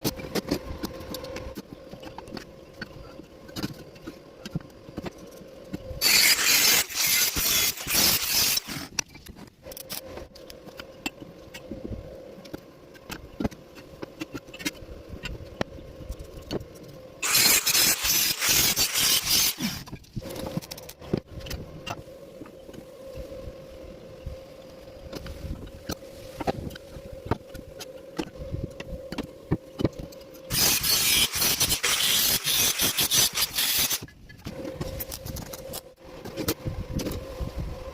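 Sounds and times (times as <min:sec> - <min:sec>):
arc welding crackle: 0:06.0 - 0:09.0, 0:17.2 - 0:20.8, 0:30.5 - 0:34.1.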